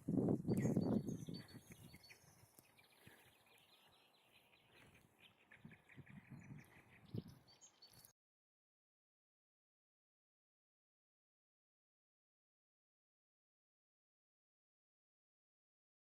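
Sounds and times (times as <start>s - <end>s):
small songbirds singing: 0.0s - 8.2s.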